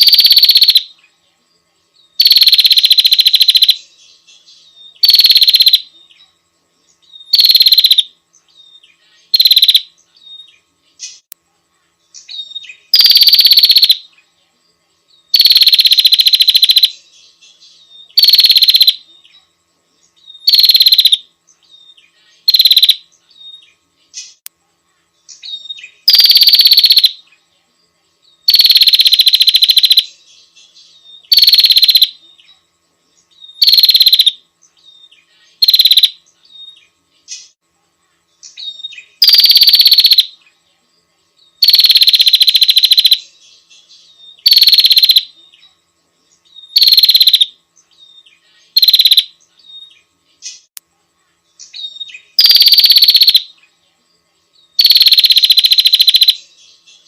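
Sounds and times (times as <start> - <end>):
bird buzzy rattling trill: 0.0 - 0.9, 2.2 - 3.9, 4.9 - 5.9, 7.2 - 10.4, 12.2 - 14.1, 15.3 - 19.1, 20.2 - 24.4, 25.3 - 27.4, 28.4 - 32.2, 33.3 - 37.6, 38.5 - 40.4, 41.6 - 43.6, 44.2 - 45.4, 46.5 - 50.8, 51.7 - 53.6, 54.7 - 56.5.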